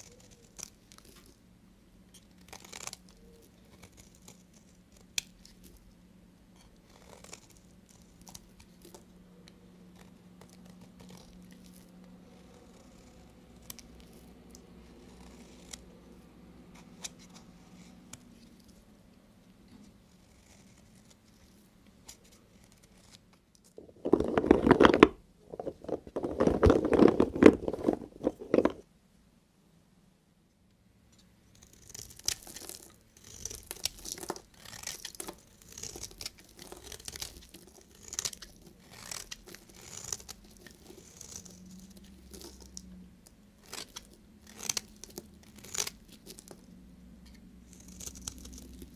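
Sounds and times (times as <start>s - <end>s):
knife cutting through soap: 6.6s - 9.0s, 10.0s - 16.0s.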